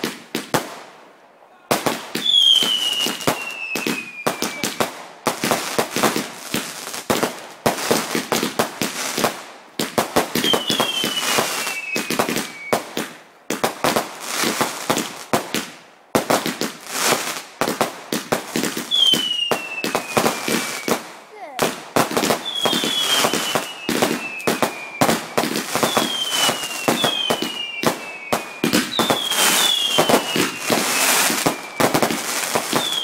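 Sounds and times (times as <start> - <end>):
fireworks crackling: 0.0 - 33.0
firework whistle falling in pitch: 2.2 - 4.8, 10.4 - 12.7, 22.6 - 32.1.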